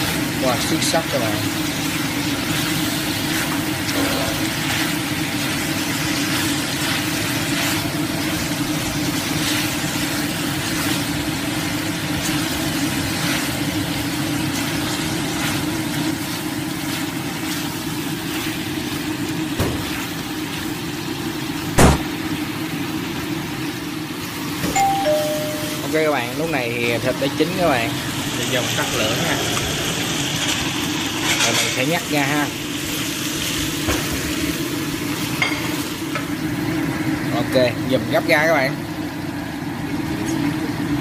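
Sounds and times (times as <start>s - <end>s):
chicken sizzling in a wok: 0.0s - 41.0s
sharp knock: 21.8s - 22.1s
chopsticks scraping a wok: 31.2s - 31.8s.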